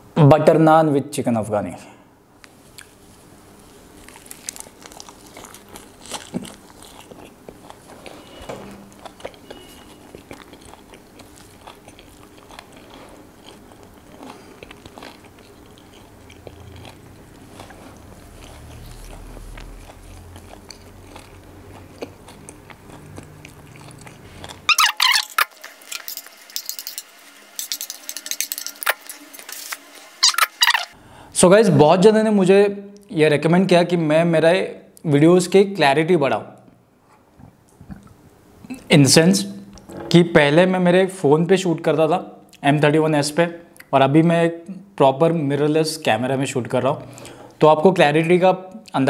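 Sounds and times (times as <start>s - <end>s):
wet chewing mouth clicks: 9.0s - 26.0s
spoon scraping across plate: 24.7s - 31.0s.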